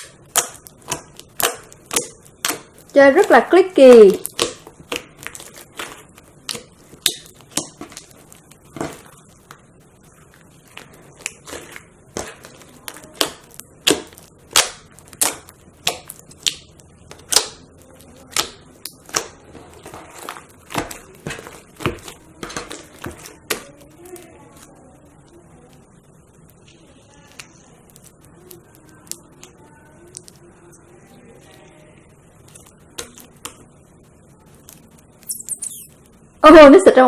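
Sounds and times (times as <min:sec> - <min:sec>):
slime clicking pops: 0:00.0 - 0:02.8, 0:04.2 - 0:08.1, 0:11.2 - 0:17.6, 0:18.3 - 0:19.4.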